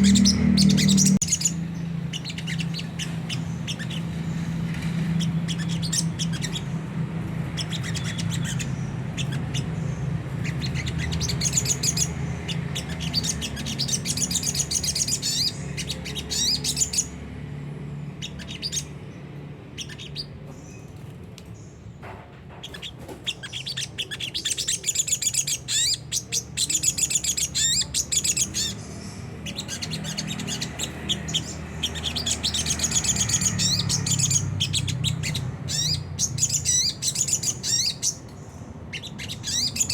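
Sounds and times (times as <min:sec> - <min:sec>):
bird twittering: 0:00.0 - 0:17.2, 0:18.2 - 0:19.0, 0:19.7 - 0:20.9, 0:22.6 - 0:39.9.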